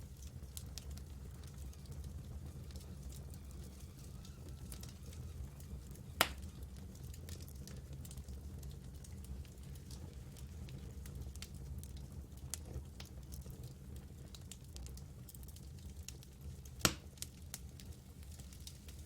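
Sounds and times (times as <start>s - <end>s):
campfire wood crackling: 0.0s - 19.0s
loud fire snap: 2.6s - 8.3s, 16.8s - 19.0s.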